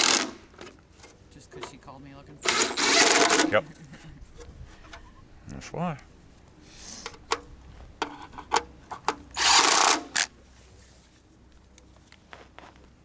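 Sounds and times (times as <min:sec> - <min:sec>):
impact wrench burst: 0:00.0 - 0:00.5, 0:02.4 - 0:03.6, 0:09.4 - 0:10.3
tools clicking and knocking: 0:07.0 - 0:10.3.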